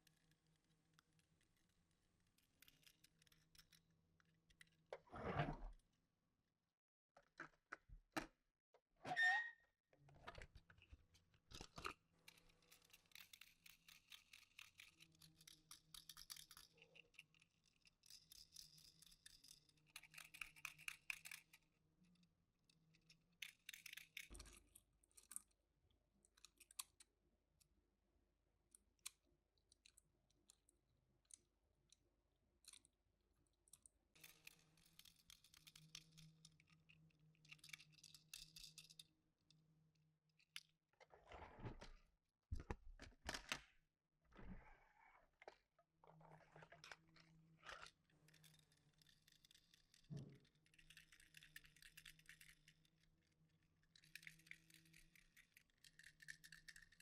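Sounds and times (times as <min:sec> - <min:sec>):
short rising squeak: 0:09.0 - 0:09.6.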